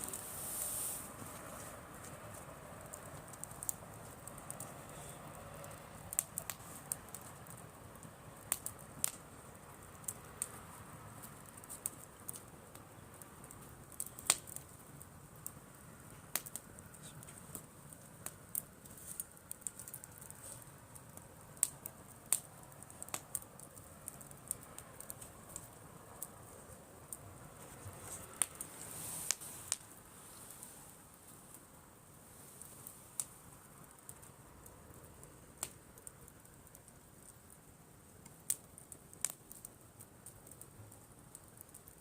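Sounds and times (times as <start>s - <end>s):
campfire crackling and popping: 0.0s - 42.0s
faint steady background noise: 0.0s - 42.0s.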